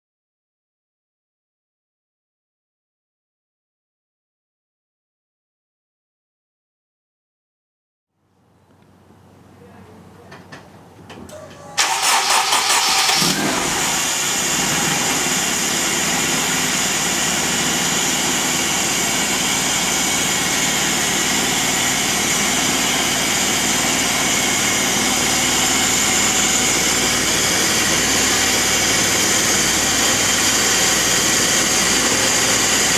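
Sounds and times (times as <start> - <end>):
engine starter cranking: 11.8 - 14.5
car engine idling: 11.8 - 32.9.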